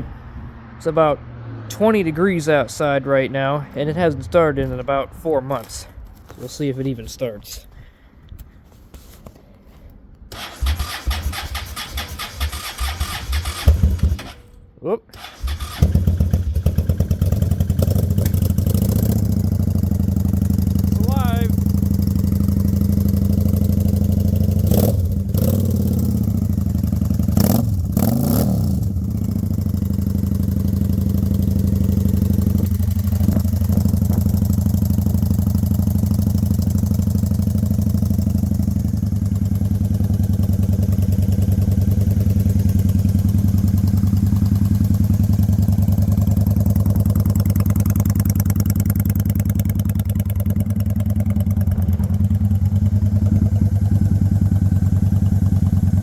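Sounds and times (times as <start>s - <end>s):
motorcycle engine idling: 10.4s - 14.3s, 15.4s - 28.2s, 28.8s - 56.0s
engine knocks: 32.4s - 36.0s, 39.3s - 56.0s.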